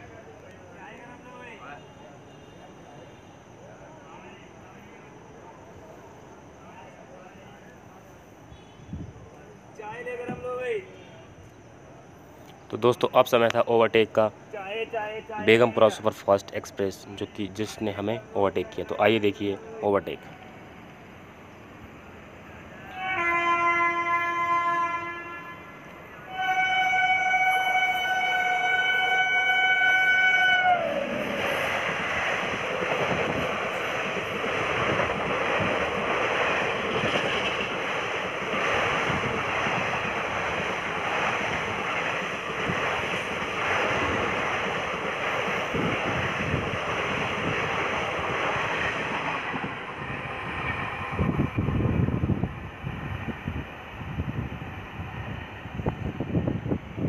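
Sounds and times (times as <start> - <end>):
train coaches rumbling past: 0.0 - 57.0
train horn: 22.8 - 31.6.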